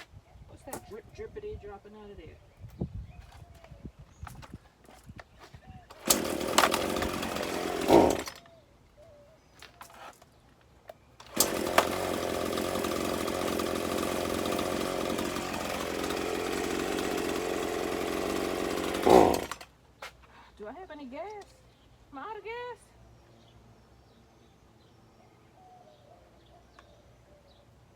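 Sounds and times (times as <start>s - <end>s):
chainsaw running: 5.9s - 8.4s, 11.2s - 19.7s.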